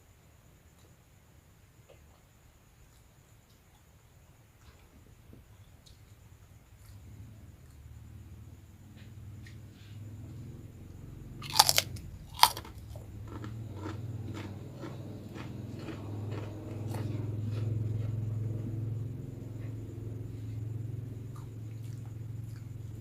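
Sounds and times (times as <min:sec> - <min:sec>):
crunching crispy crackers: 0:11.4 - 0:17.1.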